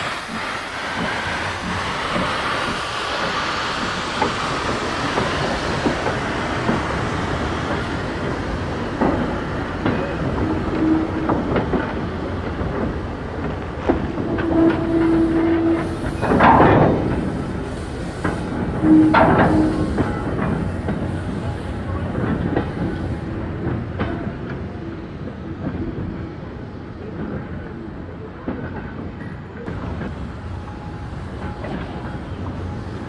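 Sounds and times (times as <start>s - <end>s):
wheels clattering on track: 0.0s - 24.8s
train rumbling: 0.0s - 33.0s.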